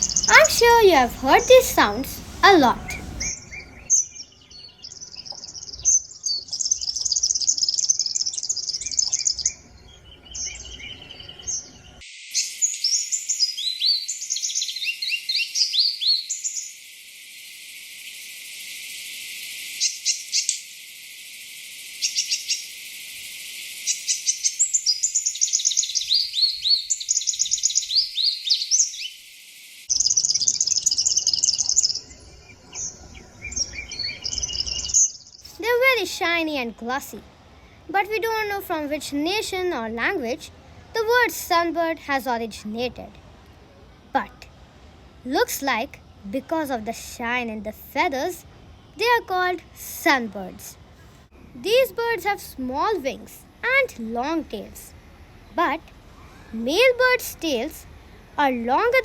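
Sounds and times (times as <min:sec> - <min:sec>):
sunbirds chirping and trilling: 0:00.0 - 0:59.0.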